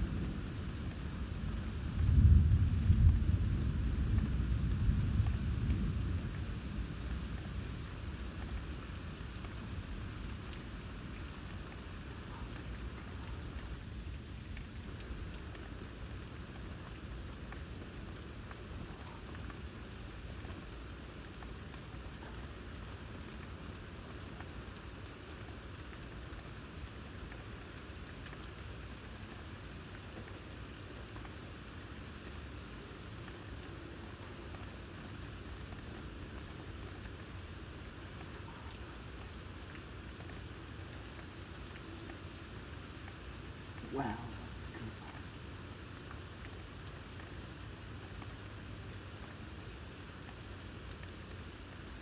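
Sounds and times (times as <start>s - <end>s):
low thunder rumble: 0.0s - 7.8s, 43.8s - 45.4s
steady rain falling: 0.0s - 52.0s.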